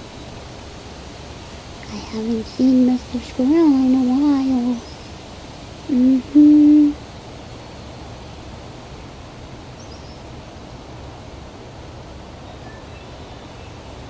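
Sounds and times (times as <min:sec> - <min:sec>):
wind hiss: 0:00.0 - 0:14.0
person humming low notes: 0:05.9 - 0:07.0.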